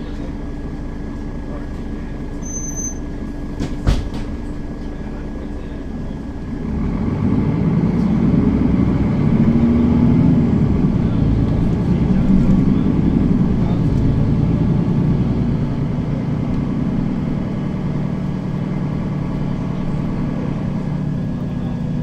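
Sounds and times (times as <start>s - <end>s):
bus engine running: 0.0s - 22.0s
short knock: 3.6s - 4.4s.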